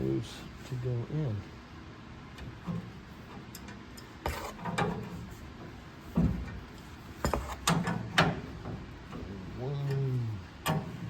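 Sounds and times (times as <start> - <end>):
knocks and clatters of hand work: 2.4 - 11.0.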